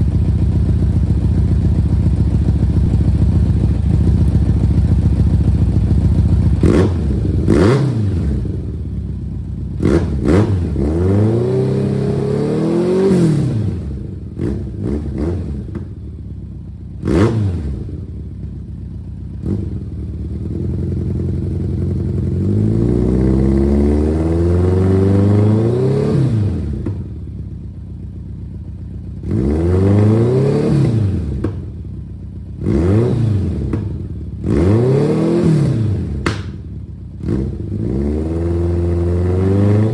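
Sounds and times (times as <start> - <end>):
motorcycle engine revving: 0.0 - 39.9
exhaust cracks: 36.2 - 36.8.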